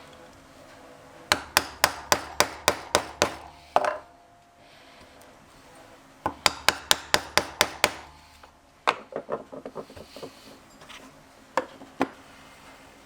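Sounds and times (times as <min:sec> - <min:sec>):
hammer striking leather: 0:01.3 - 0:03.9, 0:06.3 - 0:08.3.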